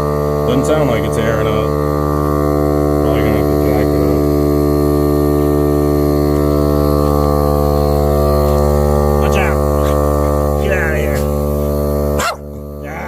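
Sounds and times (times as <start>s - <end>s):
air compressor motor humming: 0.0s - 13.0s.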